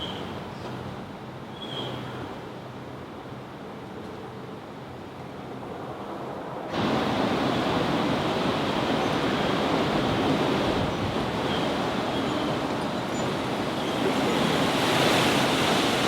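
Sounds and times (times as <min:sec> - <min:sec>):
steady rushing noise: 0:05.3 - 0:16.0.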